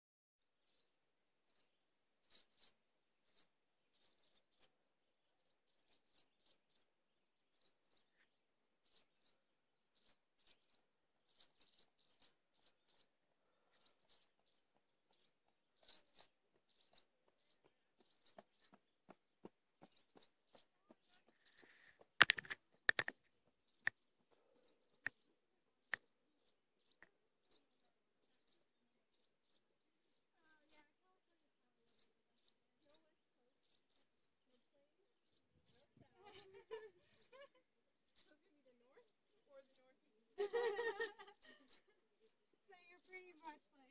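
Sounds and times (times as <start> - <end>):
small birds chirping: 0.4 - 43.9
loud sharp clicks: 22.2 - 23.2.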